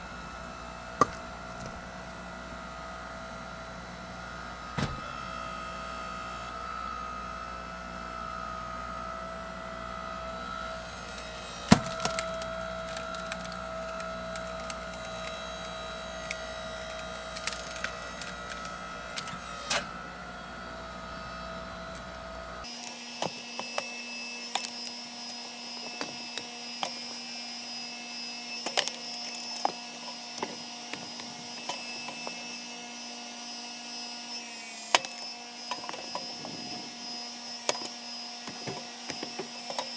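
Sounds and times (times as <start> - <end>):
log splitter machine whine: 0.0 - 39.9
logs cracking and splintering: 11.7 - 19.3.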